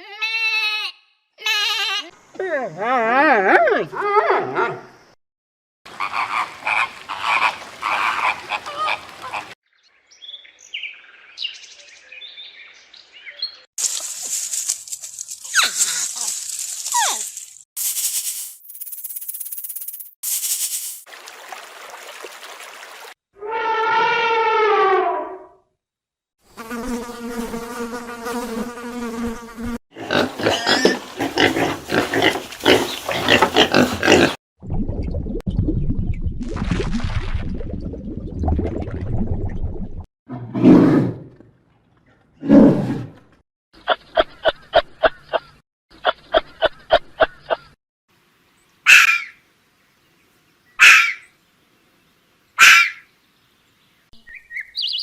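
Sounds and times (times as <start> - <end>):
bird chirping: 9.7 - 13.7, 52.9 - 55.0.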